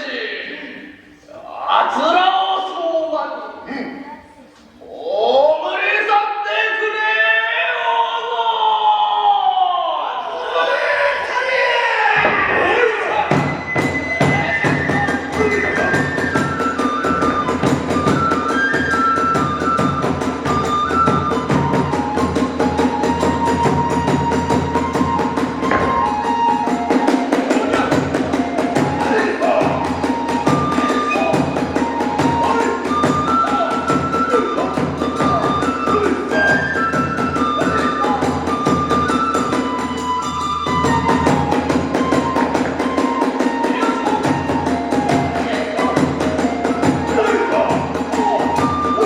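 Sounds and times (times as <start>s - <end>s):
bamboo flute melody: 11.8s - 49.0s
drum strokes: 12.2s - 49.0s.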